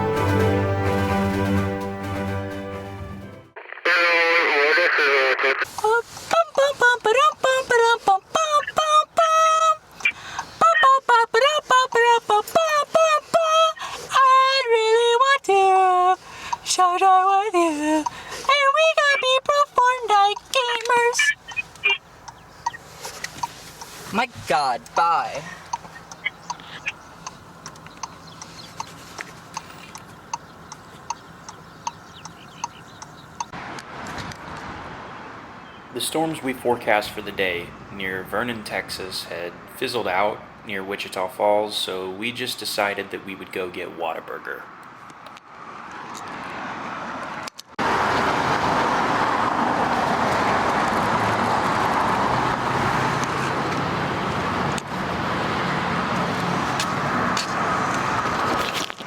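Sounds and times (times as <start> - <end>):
road and tyre noise: 3.5 - 59.0
turn signal ticking: 5.7 - 33.6, 50.0 - 58.4
low engine hum: 5.7 - 35.8.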